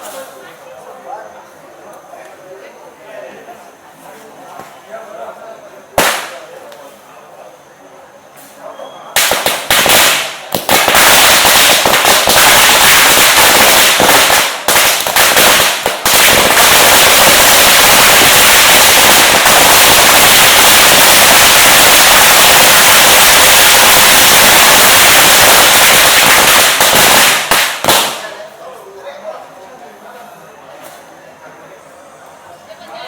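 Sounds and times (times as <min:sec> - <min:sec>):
firecrackers crackling: 0:05.9 - 0:07.1, 0:08.4 - 0:28.6.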